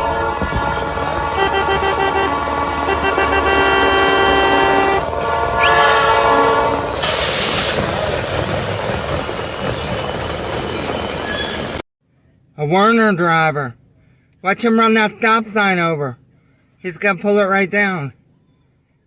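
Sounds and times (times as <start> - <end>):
horn sounding a chord: 0.0 - 7.0
steady rumble: 0.0 - 8.8
short burst of hiss: 7.0 - 7.9.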